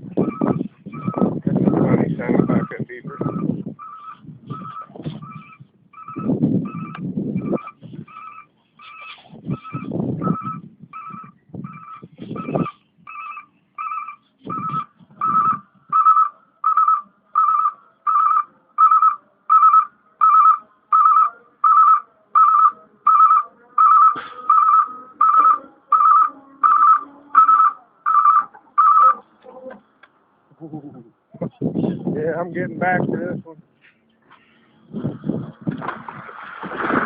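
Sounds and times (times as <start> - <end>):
backup alarm beeping: 0.1 - 8.5, 9.5 - 29.2.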